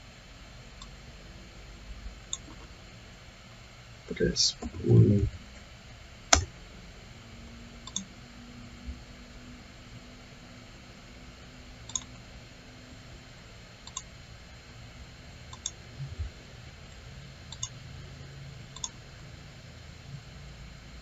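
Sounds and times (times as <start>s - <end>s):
room hiss and hum: 0.0s - 21.0s
computer mouse clicking: 2.3s - 2.7s, 6.3s - 6.5s, 7.8s - 8.1s, 11.9s - 12.2s, 13.8s - 14.1s, 15.5s - 15.8s, 17.5s - 17.8s, 18.7s - 19.0s.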